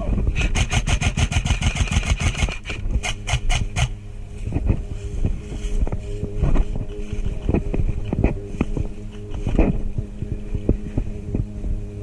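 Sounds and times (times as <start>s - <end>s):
low rumble: 0.0s - 12.0s
airsoft gun firing rapid shots: 0.4s - 3.9s.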